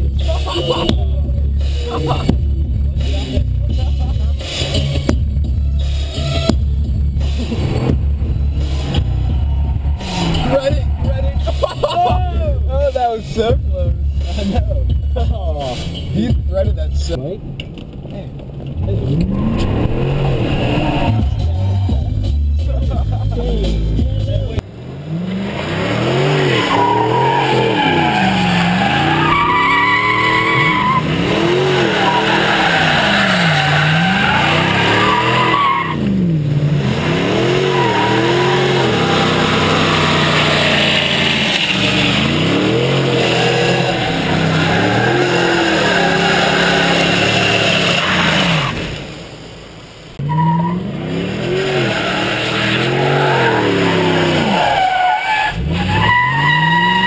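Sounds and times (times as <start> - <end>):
tyres squealing and skidding: 4.4 - 13.0, 18.8 - 21.9, 25.1 - 36.3, 37.1 - 49.0, 50.2 - 57.0
pickup engine revving: 18.4 - 49.4, 50.2 - 57.0.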